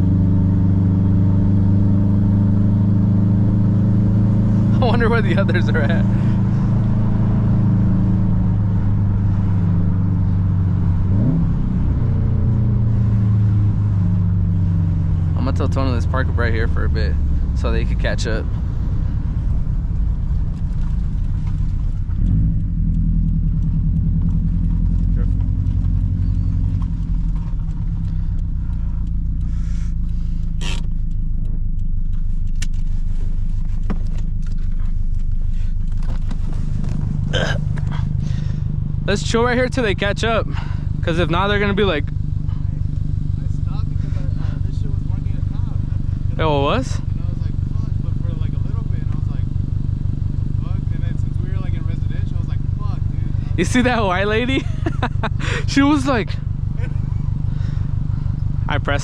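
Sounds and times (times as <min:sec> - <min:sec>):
car engine driving: 0:00.0 - 0:59.0
faint clicks: 0:19.8 - 0:36.4.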